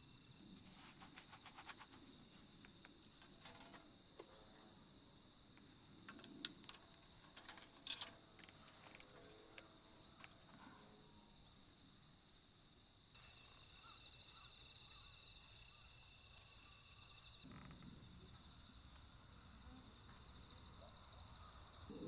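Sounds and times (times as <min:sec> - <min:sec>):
crickets chirring: 0:00.0 - 0:22.0
insect high pulsing trill: 0:10.8 - 0:22.0.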